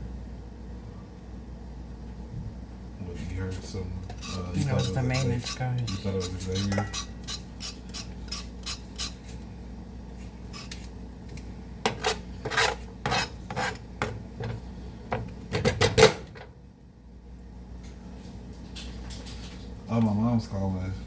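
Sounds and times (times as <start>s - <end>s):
peeler scraping potato skin: 3.5s - 9.4s, 10.5s - 11.0s, 11.9s - 13.9s.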